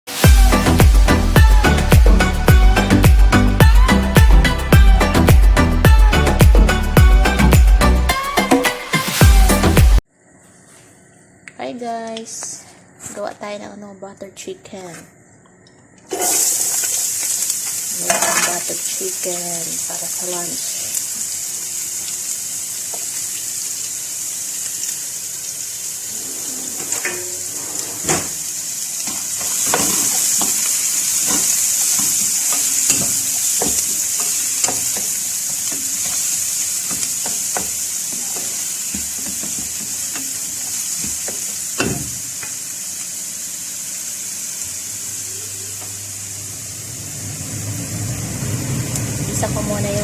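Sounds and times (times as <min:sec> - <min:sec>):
food sizzling in hot oil: 0:00.1 - 0:05.1, 0:16.1 - 0:50.0
utensil stirring against pan: 0:29.0 - 0:42.6.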